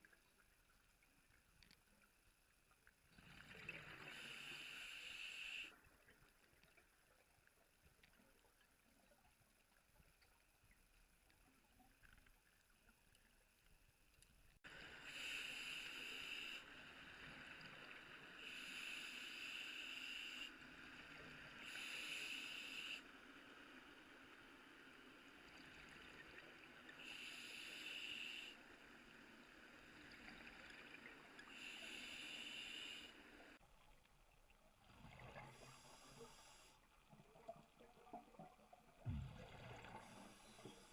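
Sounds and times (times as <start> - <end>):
faint steady hiss: 0.0 - 40.9
regulator bubbling hiss underwater: 3.5 - 5.8, 14.7 - 20.6, 21.5 - 23.1, 26.9 - 28.6, 30.4 - 33.6.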